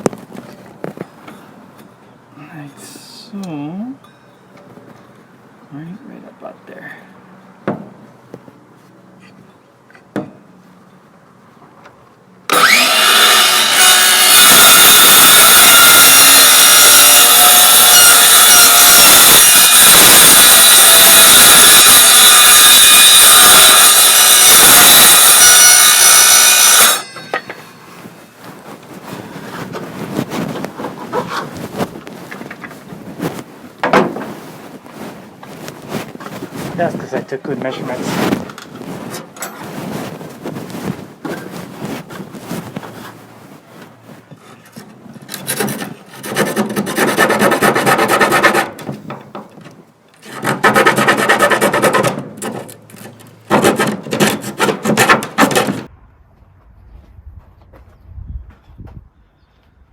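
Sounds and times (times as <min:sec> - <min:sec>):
power saw cutting plywood: 0:12.5 - 0:27.5, 0:45.3 - 0:48.8, 0:50.2 - 0:55.9.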